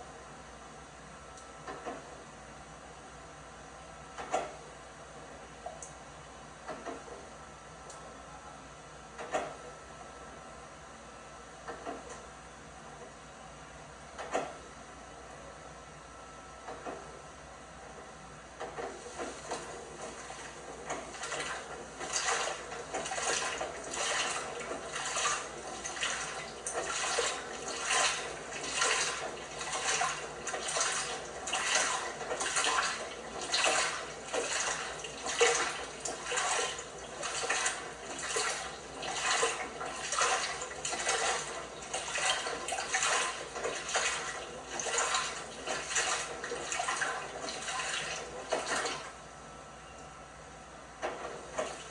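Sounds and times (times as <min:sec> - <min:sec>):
water sloshing in washing machine drum: 0:18.6 - 0:49.1, 0:51.0 - 0:51.9.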